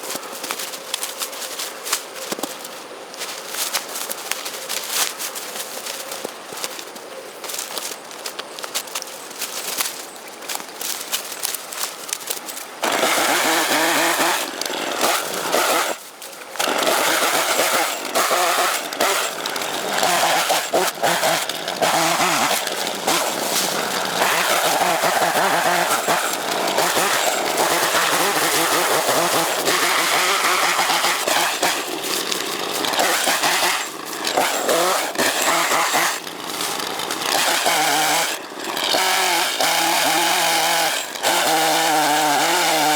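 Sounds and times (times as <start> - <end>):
chainsaw running at high revs: 12.8 - 16.0, 16.6 - 42.9
crackling and knocks: 16.5 - 39.0.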